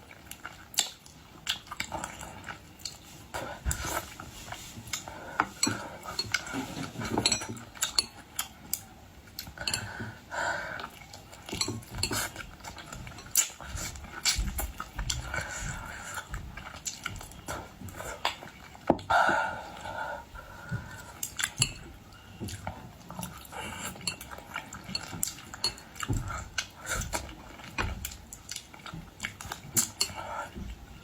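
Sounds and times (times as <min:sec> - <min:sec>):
chewing: 0:00.0 - 0:19.1, 0:19.7 - 0:31.0
utensils clinking on dishes: 0:05.0 - 0:08.2, 0:11.4 - 0:14.5, 0:23.2 - 0:26.4, 0:29.4 - 0:30.6.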